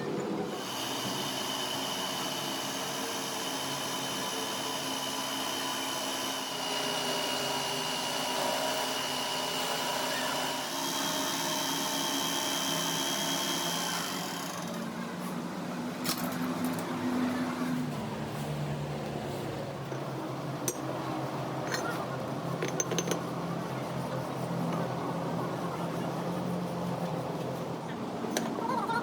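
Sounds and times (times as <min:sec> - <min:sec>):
power tool whining: 0:00.5 - 0:14.9.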